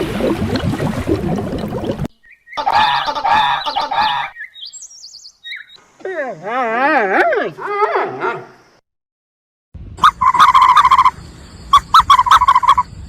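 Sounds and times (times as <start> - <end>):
high chirps: 10.0 - 12.9
large bird wavering call: 10.0 - 12.9.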